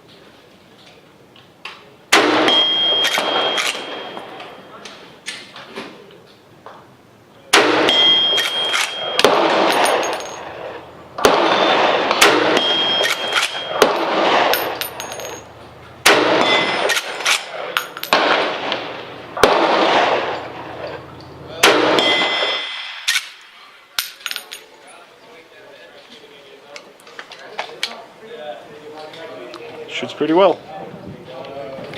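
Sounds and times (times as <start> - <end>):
rifle shots: 2.1 - 4.4, 7.5 - 15.4, 16.0 - 21.0, 21.6 - 23.5
shot echo: 2.1 - 4.5, 7.5 - 15.3, 16.0 - 23.6.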